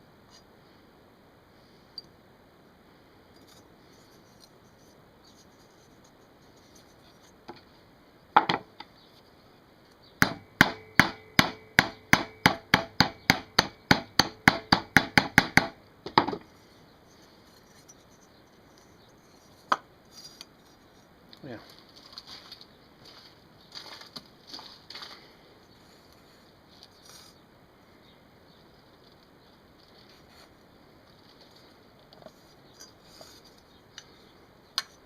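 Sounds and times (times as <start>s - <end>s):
hammer tapping on metal tank: 10.2s - 16.3s.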